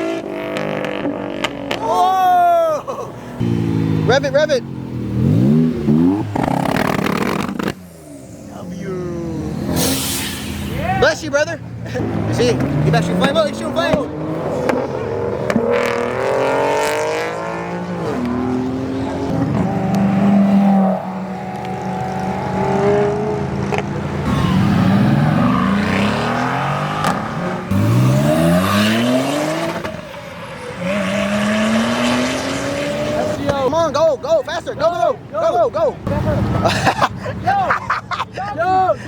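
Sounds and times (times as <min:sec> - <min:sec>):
car engines revving hard: 0:00.0 - 0:02.0, 0:03.1 - 0:34.1.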